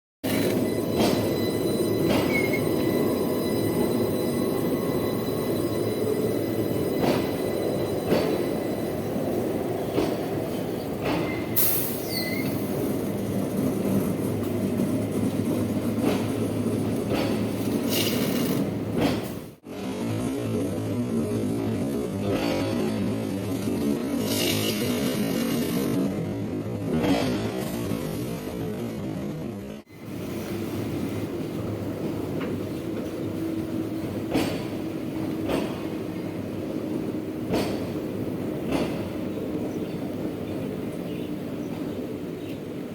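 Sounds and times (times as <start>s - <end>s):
train low rumble: 0.2s - 42.9s
sharp clacks of wheels: 14.3s - 19.6s, 32.2s - 40.0s.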